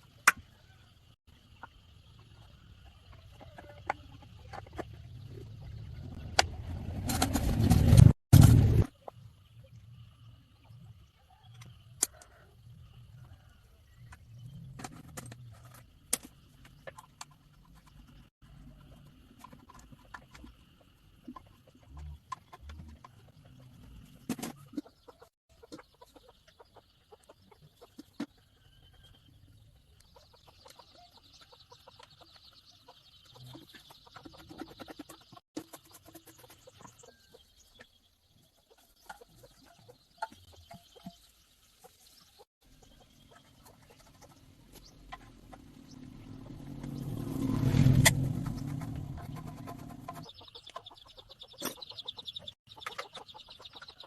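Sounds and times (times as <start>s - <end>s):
faint chickens clucking: 0.4s - 5.7s, 19.7s - 54.0s
engine humming: 44.3s - 50.2s.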